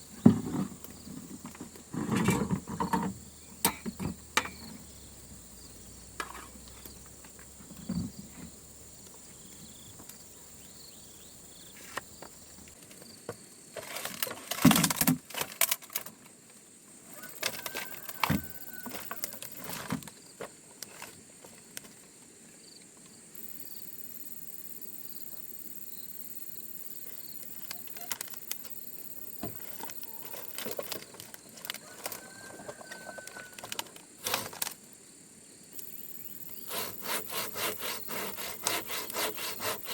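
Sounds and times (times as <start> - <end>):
knocks snaps and rustles: 11.9 - 16.3, 29.5 - 34.8
high buzz of insects: 17.1 - 20.4, 22.6 - 39.9.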